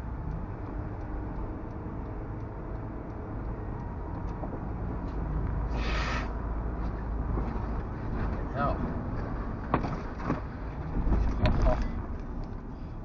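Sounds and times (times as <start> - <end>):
faint ticking: 0.0 - 5.1
vehicle engine and road rumble: 0.0 - 13.0
brief hiss: 5.8 - 6.3.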